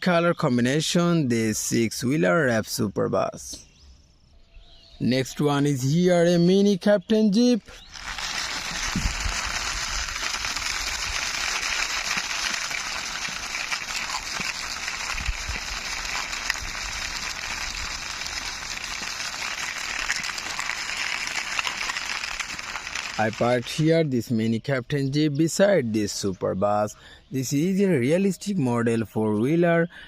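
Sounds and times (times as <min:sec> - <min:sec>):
toy wheels rolling: 0:07.7 - 0:23.8.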